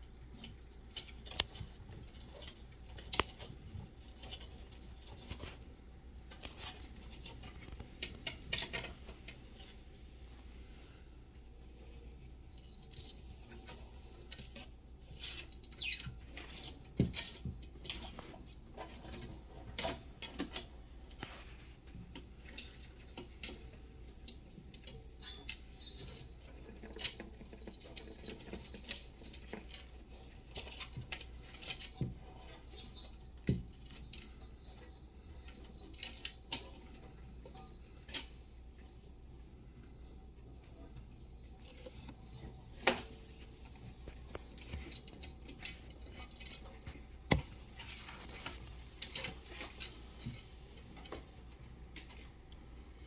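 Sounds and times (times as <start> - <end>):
hissing rustles: 42.3 - 51.8.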